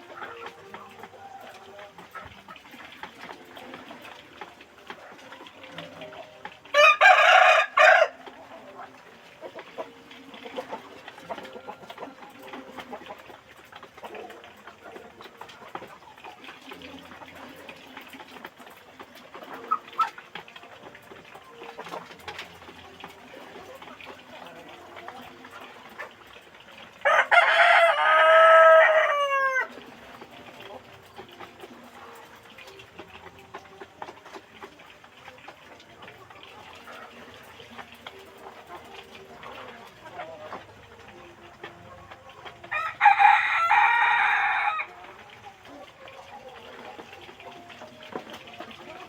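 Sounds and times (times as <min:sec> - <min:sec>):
chickens murmuring and clucking: 0:00.0 - 0:49.0
loud chicken calls: 0:06.7 - 0:08.4, 0:27.0 - 0:29.9, 0:42.7 - 0:45.0.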